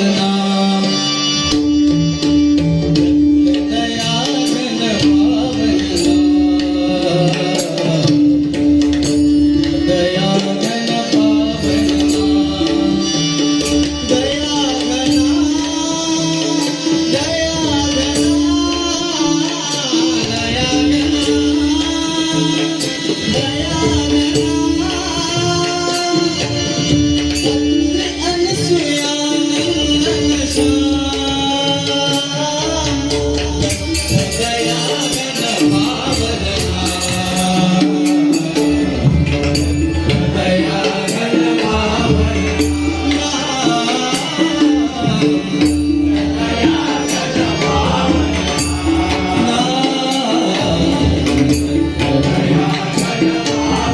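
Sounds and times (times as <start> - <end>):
jingling hand percussion: 0.0 - 53.9
tabla drumming: 0.0 - 53.9
person singing: 40.0 - 53.9.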